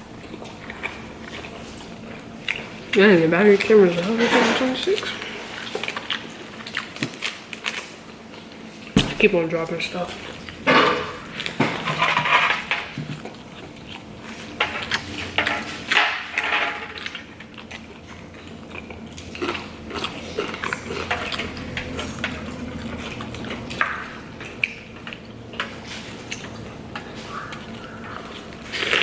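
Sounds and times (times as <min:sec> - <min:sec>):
person chewing food: 0:00.0 - 0:04.1, 0:05.0 - 0:09.3, 0:12.6 - 0:29.0.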